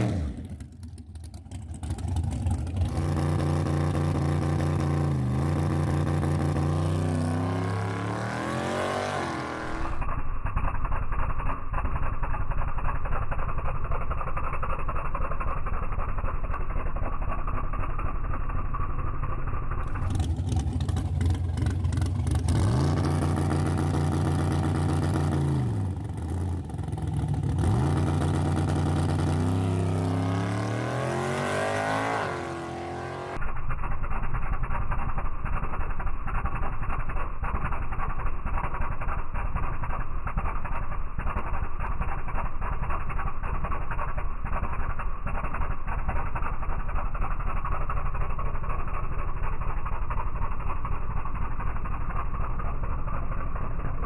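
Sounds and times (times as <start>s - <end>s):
drag racing engine revving: 0.0s - 10.2s, 19.7s - 33.4s.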